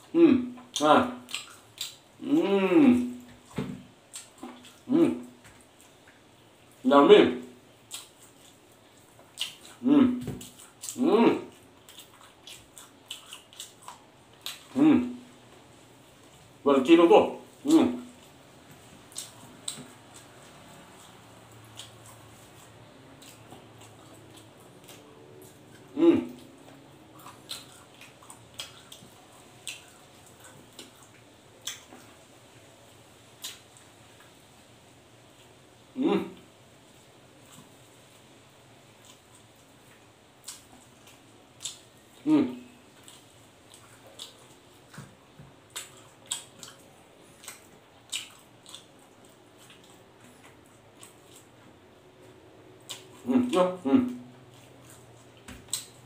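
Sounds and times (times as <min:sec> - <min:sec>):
person chewing: 0:00.0 - 0:06.8, 0:07.4 - 0:15.3, 0:17.4 - 0:32.2, 0:33.3 - 0:34.4, 0:36.3 - 0:56.0
wet mouth smacks: 0:00.7 - 0:02.0, 0:27.2 - 0:29.9, 0:47.4 - 0:48.9, 0:55.4 - 0:56.0.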